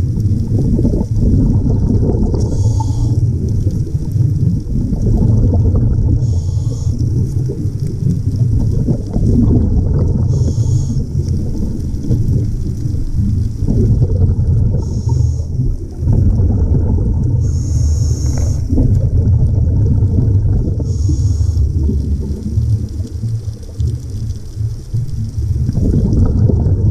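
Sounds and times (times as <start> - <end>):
underwater rumble of water: 0.0 - 26.9
short high hiss: 17.5 - 18.7, 20.9 - 21.7.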